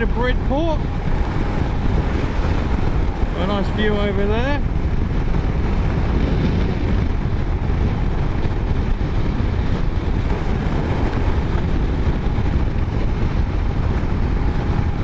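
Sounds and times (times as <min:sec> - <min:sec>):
motorcycle engine running: 0:00.0 - 0:15.0
wind over microphone: 0:00.0 - 0:15.0.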